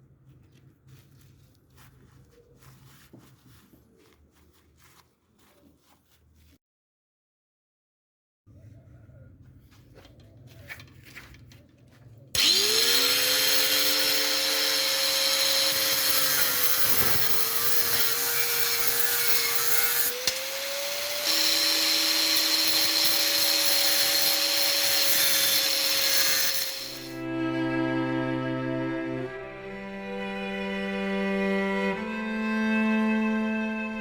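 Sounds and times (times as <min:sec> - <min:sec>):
motor whining: 0:12.4 - 0:27.3.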